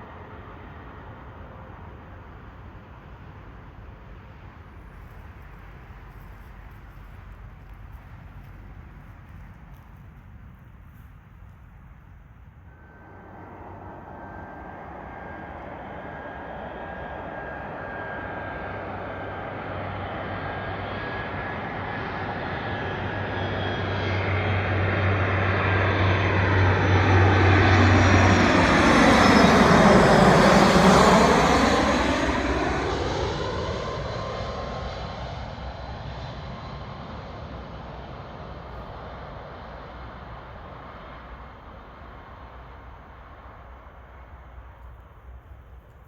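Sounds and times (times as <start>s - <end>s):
jet airliner flying past: 0.0s - 46.0s
jet engine whine: 0.0s - 46.0s.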